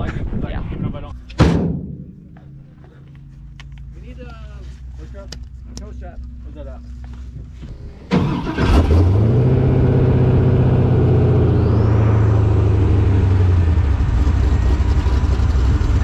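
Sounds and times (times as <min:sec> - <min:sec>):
faint rising whine: 0:09.6 - 0:15.5
truck engine idling loudly: 0:13.2 - 0:16.0.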